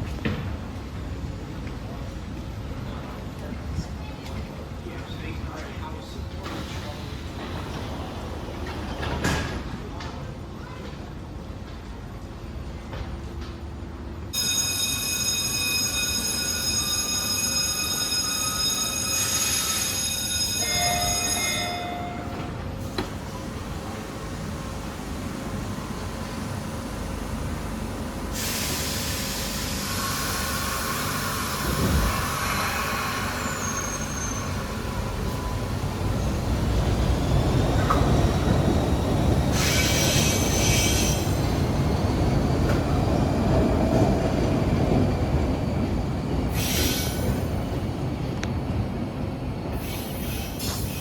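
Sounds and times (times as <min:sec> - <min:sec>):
subway train rumbling on rails: 0:00.0 - 0:51.0
high-pitched wheel squeals: 0:32.2 - 0:34.8.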